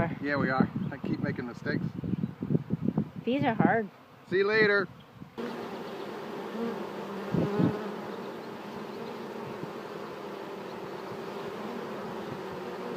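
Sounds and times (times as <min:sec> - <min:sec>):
honeybees buzzing: 0:00.7 - 0:12.9
bee flying past close: 0:05.0 - 0:12.9.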